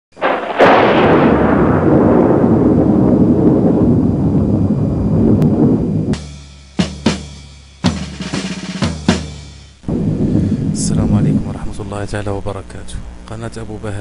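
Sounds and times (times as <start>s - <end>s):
loud boom with rumbling decay: 0.2s - 6.5s, 9.8s - 12.5s
drum hits: 6.1s - 11.7s.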